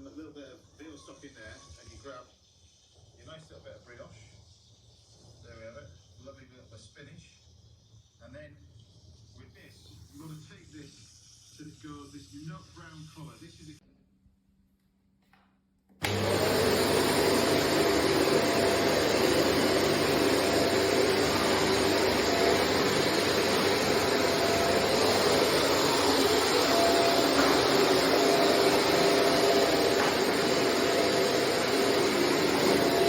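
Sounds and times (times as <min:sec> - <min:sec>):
vacuum cleaner motor whining: 0:16.0 - 0:33.0.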